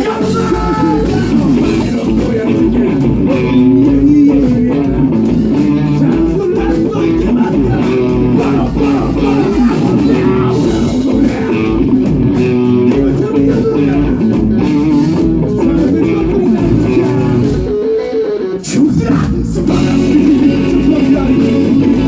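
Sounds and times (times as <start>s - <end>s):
bass: 0.0s - 17.8s, 18.6s - 22.0s
steady beat: 0.0s - 17.8s
band music: 0.0s - 22.0s
guitar: 0.0s - 22.0s.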